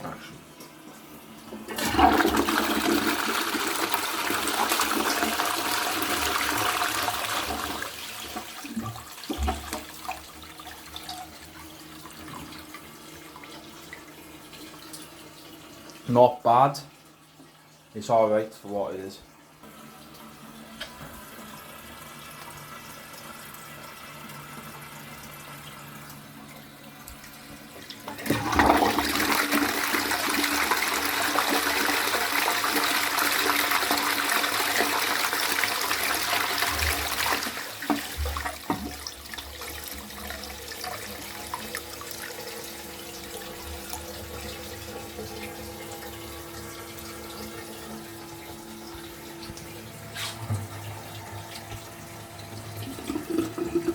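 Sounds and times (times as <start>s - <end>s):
toilet cistern refilling: 0.0s - 18.4s, 19.6s - 53.9s
toilet flush rushing water: 1.2s - 16.3s, 19.7s - 53.9s
water gurgling: 24.7s - 53.9s.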